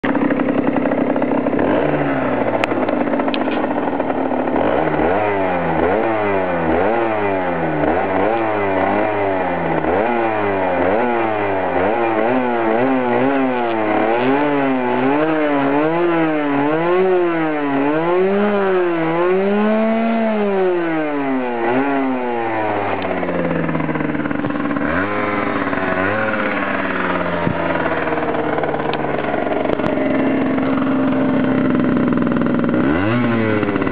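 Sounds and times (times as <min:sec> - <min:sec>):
two-stroke engine revving: 0:00.0 - 0:33.9.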